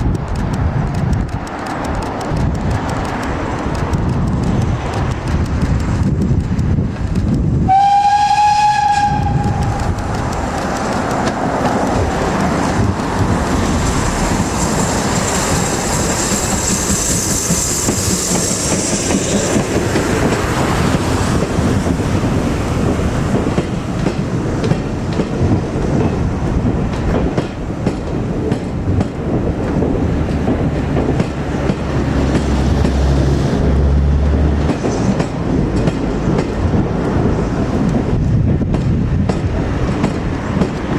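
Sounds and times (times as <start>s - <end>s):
train running on rails: 0.0s - 40.9s
steam locomotive whistle: 7.7s - 10.0s.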